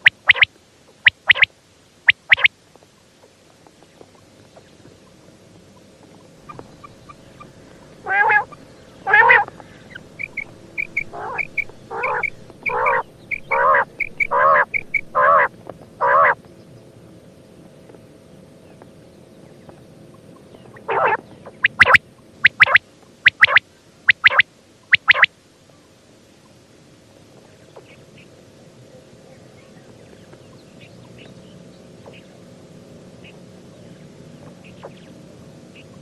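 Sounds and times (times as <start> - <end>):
quail calling: 0.0 - 1.5, 2.1 - 2.5, 6.4 - 16.4, 20.6 - 25.3
sharp sweeping bird notes: 0.0 - 1.5, 2.1 - 2.5, 6.4 - 15.5, 20.9 - 25.3
soft high chirps: 0.0 - 1.5, 2.1 - 2.5, 6.4 - 15.5, 21.5 - 25.3.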